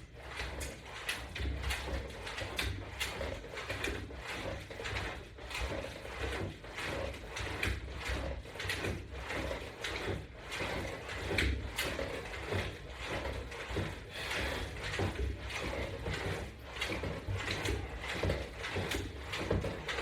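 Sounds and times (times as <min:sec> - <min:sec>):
exercise equipment clicking and creaking: 0:00.0 - 0:20.0.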